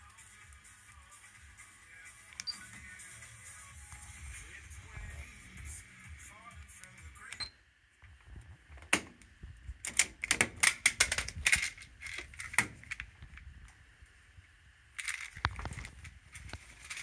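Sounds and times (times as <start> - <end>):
sharp clicks and clatter: 9.8 - 13.4, 15.0 - 17.0.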